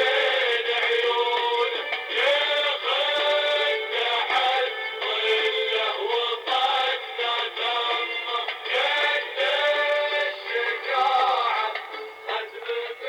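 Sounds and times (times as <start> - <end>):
man singing with tinny music: 0.0 - 13.0.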